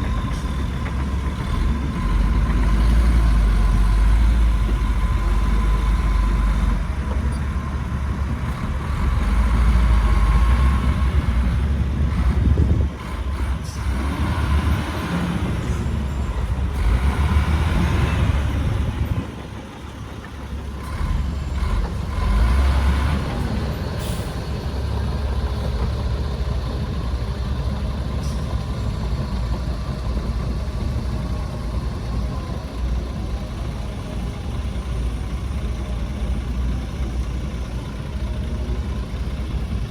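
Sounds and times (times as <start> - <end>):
heavy diesel engines rumbling: 0.0 - 39.9.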